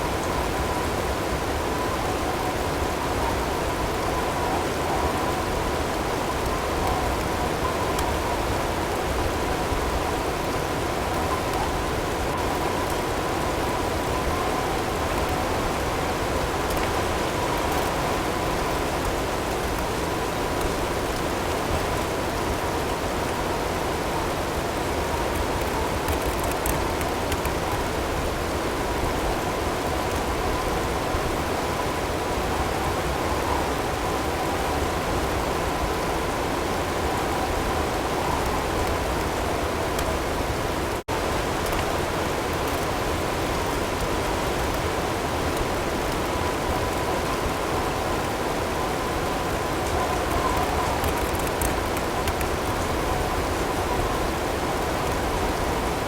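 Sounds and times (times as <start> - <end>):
wind: 0.0 - 56.0.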